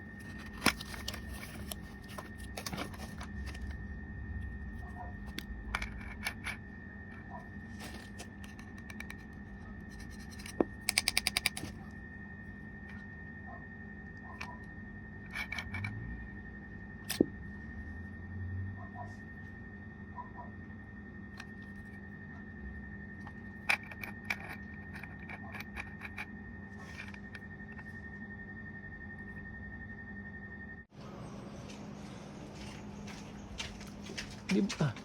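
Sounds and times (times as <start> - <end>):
objects scraping and rustling: 0.0 - 3.8, 4.8 - 11.9, 23.2 - 28.1
faint high-pitched tone: 11.8 - 31.5.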